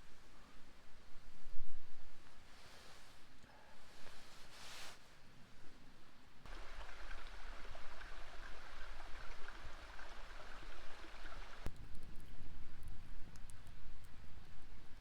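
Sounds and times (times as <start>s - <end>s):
stream water rushing: 6.5s - 11.7s.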